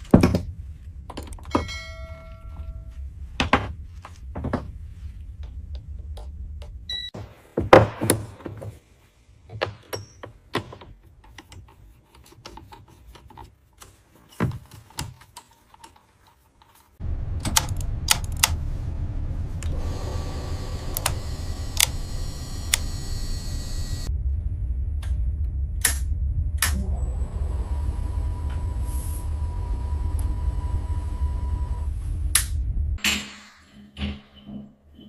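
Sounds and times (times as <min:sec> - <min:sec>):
low machine rumble: 0:00.0 - 0:06.9, 0:17.0 - 0:33.0
sharp clicks and knocks: 0:17.3 - 0:18.7
high hiss: 0:17.6 - 0:24.1.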